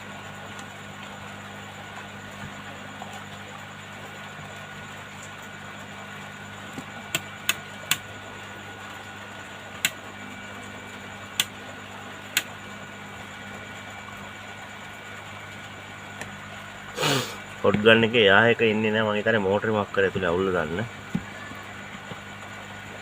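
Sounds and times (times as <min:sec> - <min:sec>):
sharp clicks: 0:07.1 - 0:08.0, 0:09.8 - 0:10.0, 0:11.4 - 0:11.6, 0:12.3 - 0:12.5
hot air gun humming: 0:16.2 - 0:17.6.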